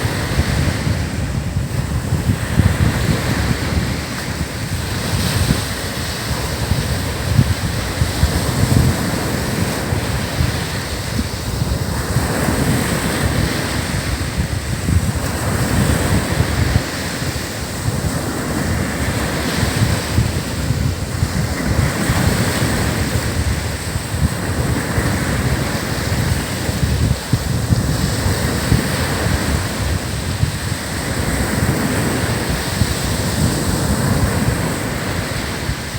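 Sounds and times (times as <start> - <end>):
surf breaking on beach: 0.0 - 35.9
wind buffeting microphone: 0.0 - 35.9.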